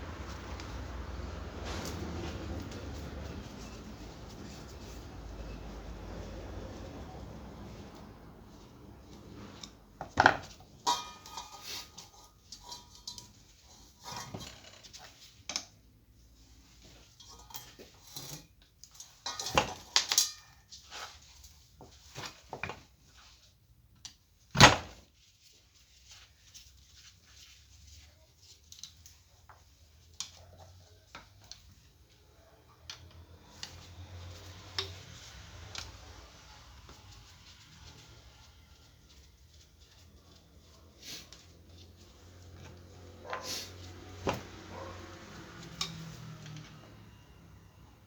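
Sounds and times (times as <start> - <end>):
metal tools clinking and knocking: 10.3 - 15.0, 17.1 - 20.7.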